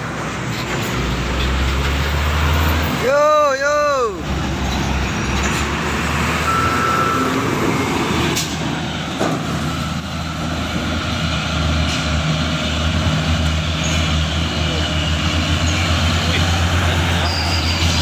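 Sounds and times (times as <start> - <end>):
diesel truck engine droning: 0.0 - 18.0
high squeal: 17.1 - 18.0.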